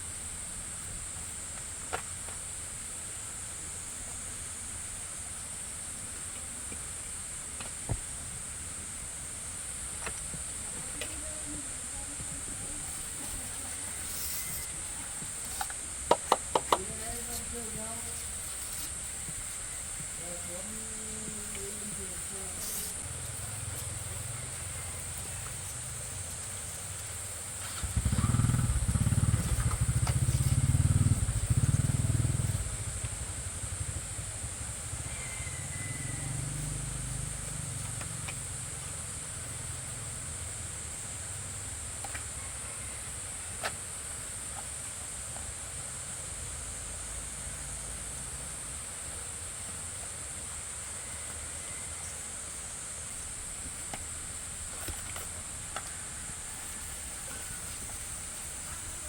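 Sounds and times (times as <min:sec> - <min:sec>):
engine low rumble: 0:00.0 - 0:43.4
constant high hiss: 0:00.0 - 0:59.0.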